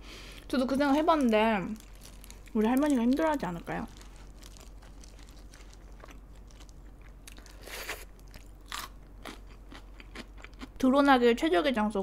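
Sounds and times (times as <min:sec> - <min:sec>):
chewing chicken: 0:03.9 - 0:10.8.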